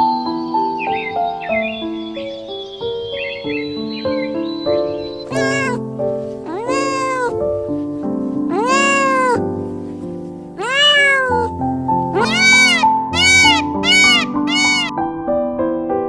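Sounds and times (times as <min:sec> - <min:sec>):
animal calling: 0:05.3 - 0:14.9.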